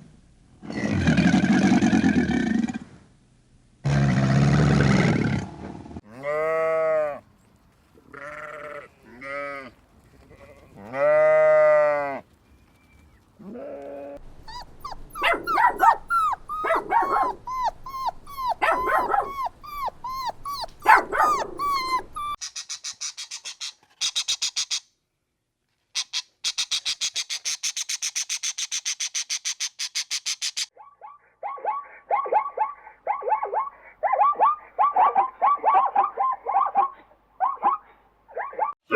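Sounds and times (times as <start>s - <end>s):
dogs yipping and whimpering: 14.3s - 22.6s, 30.4s - 38.8s.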